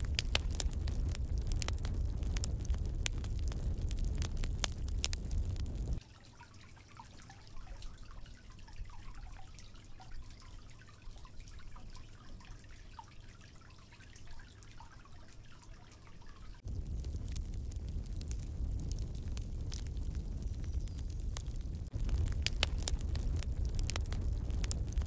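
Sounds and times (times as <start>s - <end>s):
low rumbling noise: 0.0s - 6.0s, 16.6s - 25.0s
spring water trickling: 0.0s - 25.0s.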